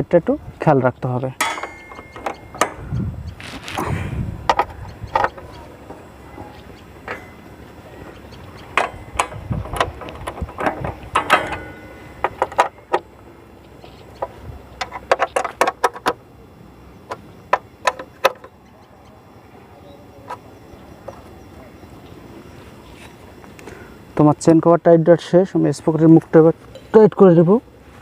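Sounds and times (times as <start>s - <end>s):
hand tools clicking on metal: 1.4s - 2.8s.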